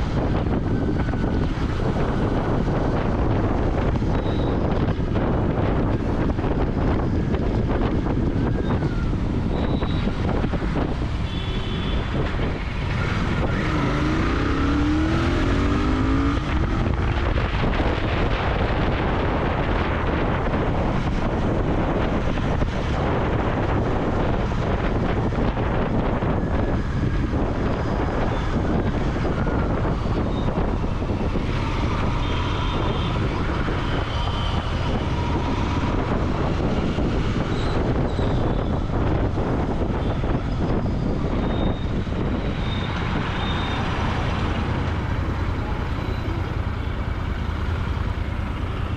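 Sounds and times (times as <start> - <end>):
motorcycle engine and exhaust: 0.0 - 48.9
wind noise on microphone: 0.0 - 48.9.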